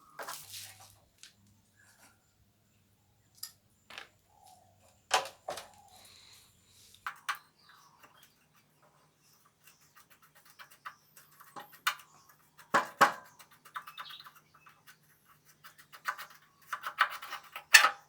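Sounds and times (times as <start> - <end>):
hard objects clicking and scraping: 9.5 - 18.0.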